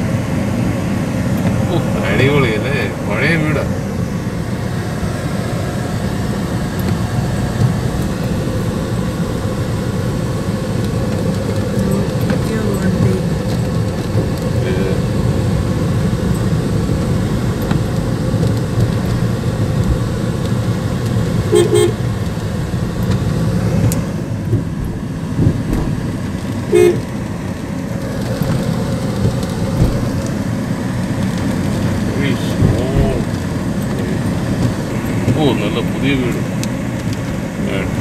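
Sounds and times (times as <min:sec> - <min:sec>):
car driving on road rumble: 0:00.0 - 0:38.0
vehicle horn tooting: 0:21.5 - 0:22.0, 0:26.7 - 0:27.1.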